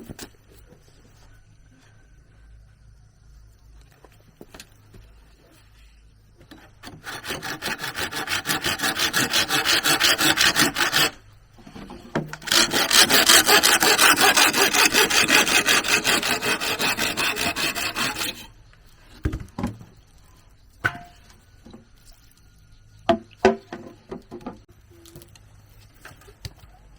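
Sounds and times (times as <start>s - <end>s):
hand saw cutting bamboo: 6.8s - 11.2s, 12.4s - 18.5s.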